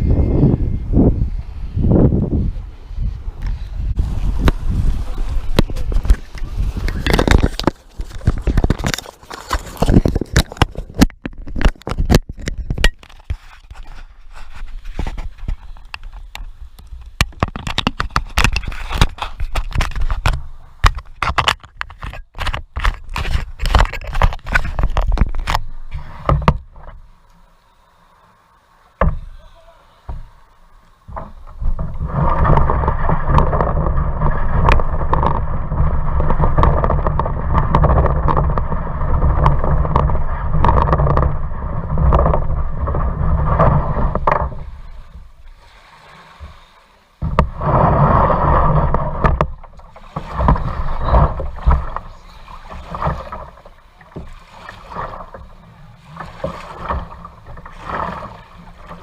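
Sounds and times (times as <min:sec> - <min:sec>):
low rumbling noise: 0:00.0 - 0:09.0, 0:24.4 - 0:45.7
water splashing: 0:03.9 - 0:59.0
paddle strokes knocking: 0:29.0 - 0:59.0.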